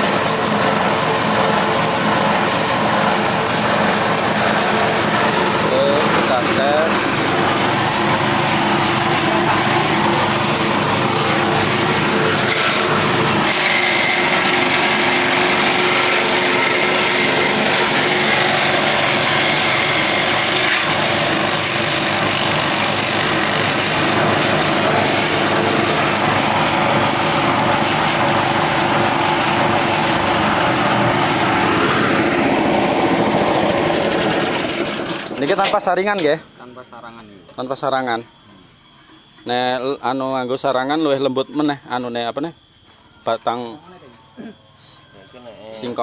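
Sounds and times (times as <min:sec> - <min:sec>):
forage chopper machine running: 0:00.0 - 0:36.4.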